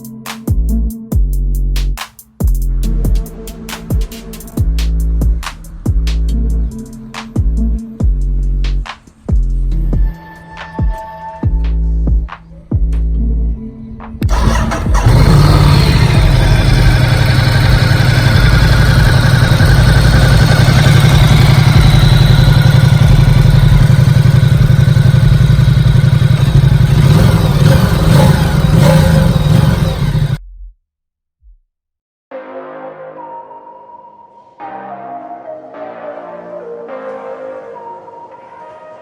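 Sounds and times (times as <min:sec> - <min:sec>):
motorcycle engine running: 0:14.2 - 0:30.4.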